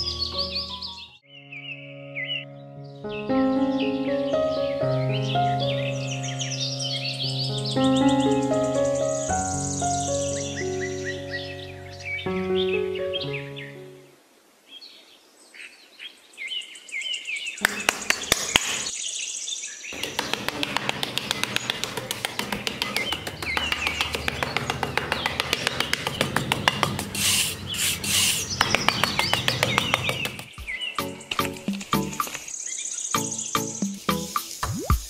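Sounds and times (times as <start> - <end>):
birds chirping: 0.0 - 35.0
trowel scraping sand: 27.0 - 29.1.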